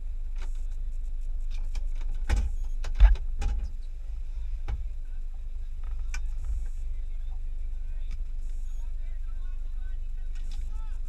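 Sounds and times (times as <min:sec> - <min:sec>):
engine idling: 0:00.0 - 0:11.0
clicks and knocks on vehicle: 0:01.5 - 0:03.8.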